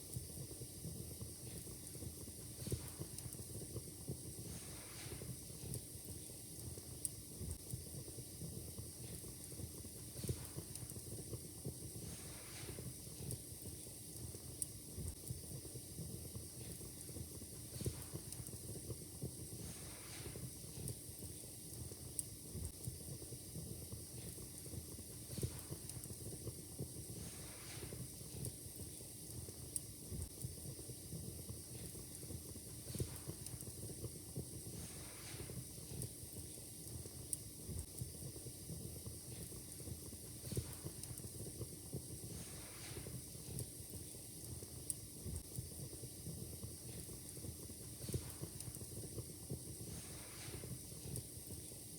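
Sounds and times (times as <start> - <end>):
wood fire crackling and popping: 0.0 - 51.9.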